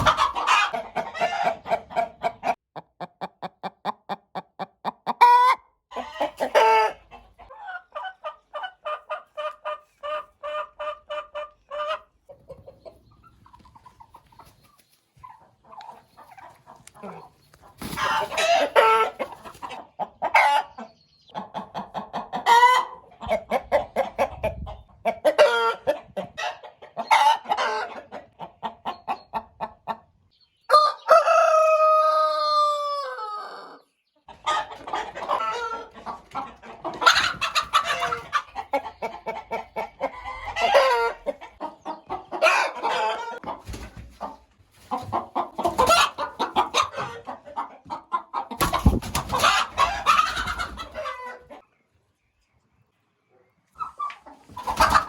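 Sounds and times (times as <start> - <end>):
chickens clucking: 0.0 - 55.0
rooster crowing: 30.7 - 33.8.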